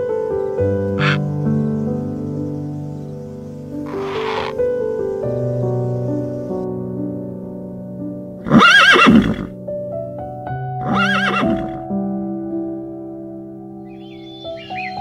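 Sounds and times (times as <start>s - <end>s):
soft piano music: 0.0s - 15.0s
horse whinnying: 3.9s - 4.6s, 8.4s - 9.5s, 10.8s - 11.8s.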